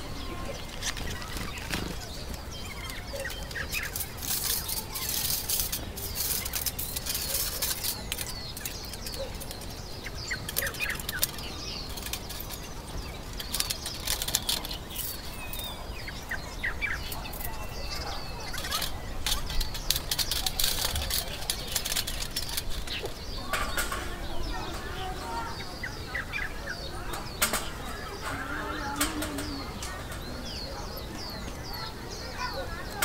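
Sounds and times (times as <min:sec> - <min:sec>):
sharp clicks and hiss: 0:00.0 - 0:15.7
small birds chirping: 0:00.0 - 0:33.0.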